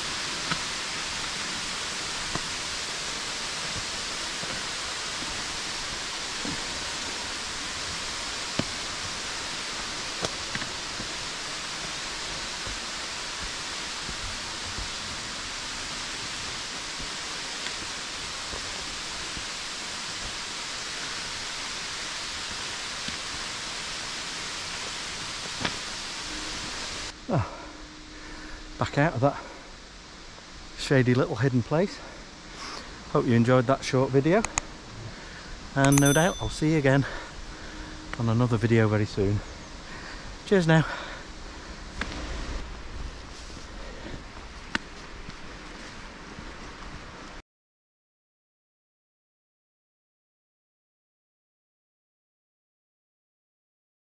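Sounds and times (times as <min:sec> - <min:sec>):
falling water rushing: 0:00.0 - 0:27.2.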